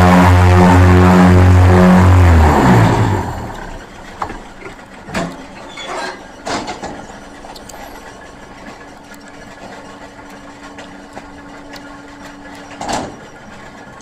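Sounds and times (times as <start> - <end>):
pulsing low motor hum: 0.0 - 5.1
mechanical clanks: 3.4 - 9.9, 12.3 - 13.8.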